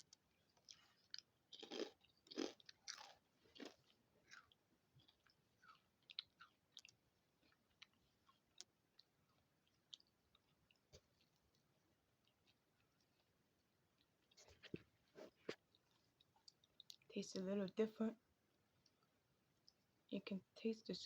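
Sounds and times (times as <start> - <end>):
crisps crunching while chewed: 0.0 - 13.4, 15.5 - 17.1.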